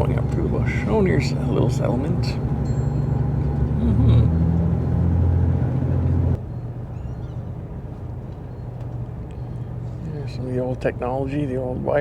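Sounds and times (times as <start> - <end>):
passenger train rumbling: 0.0 - 8.7.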